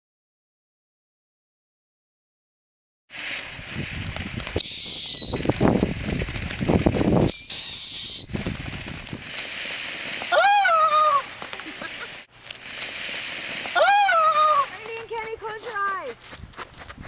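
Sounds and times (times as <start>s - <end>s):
firework whistles gliding down: 3.1s - 14.9s
fireworks crackling: 3.1s - 17.0s.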